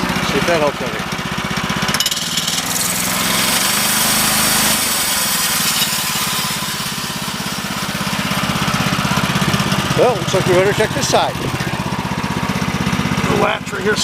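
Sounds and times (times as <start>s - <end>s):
small gas engine running: 0.0s - 14.0s
band saw blade whirring hiss: 2.3s - 8.2s.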